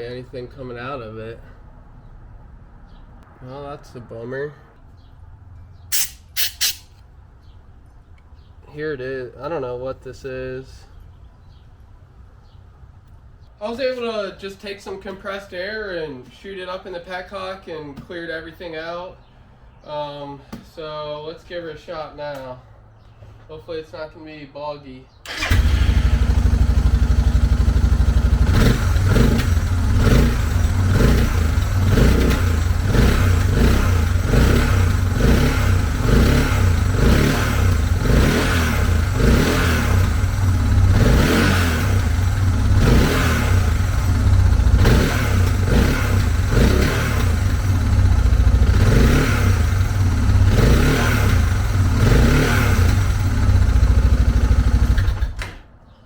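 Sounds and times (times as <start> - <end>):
motorcycle engine revving: 25.3 - 55.4.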